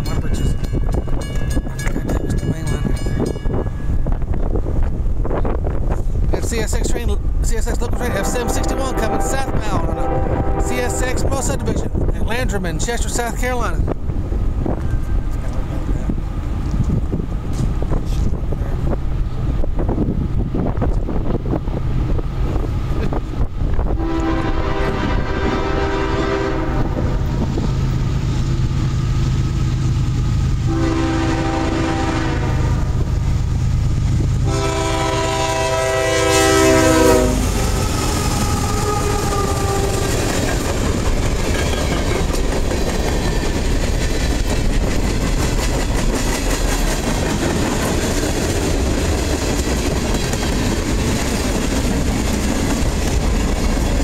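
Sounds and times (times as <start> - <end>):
train wheels clickety-clack: 0.0 - 3.6, 14.7 - 19.0, 37.4 - 54.0
locomotive engine rumbling: 0.0 - 54.0
train horn blasts: 7.9 - 11.4, 23.9 - 27.3, 30.6 - 33.1, 34.4 - 40.1.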